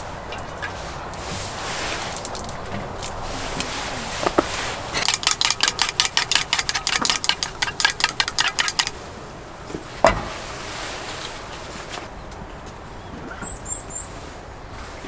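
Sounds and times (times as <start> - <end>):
utensil knock: 4.2 - 8.9
utensil whisking in a bowl: 5.0 - 9.0.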